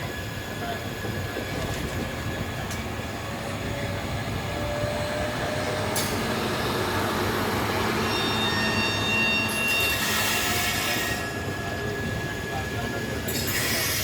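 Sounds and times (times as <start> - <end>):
train running on track: 0.0 - 14.0.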